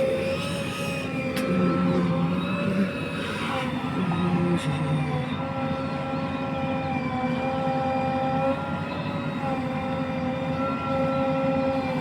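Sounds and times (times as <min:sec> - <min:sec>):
steady whine: 0:00.0 - 0:12.0.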